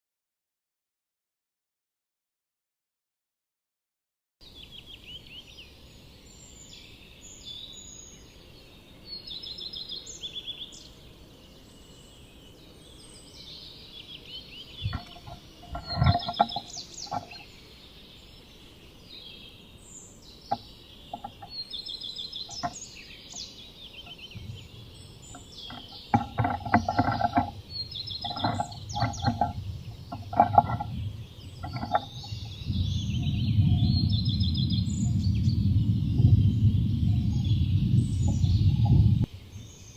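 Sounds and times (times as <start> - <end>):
birds singing and calling: 4.4 - 39.9
bird knocking inside nest box: 14.8 - 17.4, 20.5 - 21.6, 22.5 - 22.8, 25.2 - 32.6.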